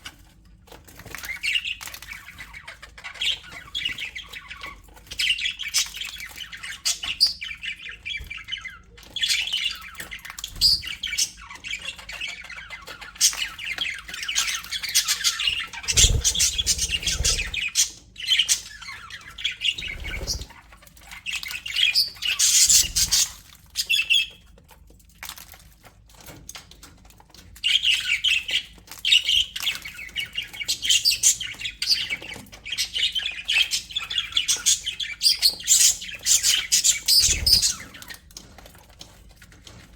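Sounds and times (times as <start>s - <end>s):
budgerigars chattering: 14.4s - 20.6s, 35.4s - 38.0s.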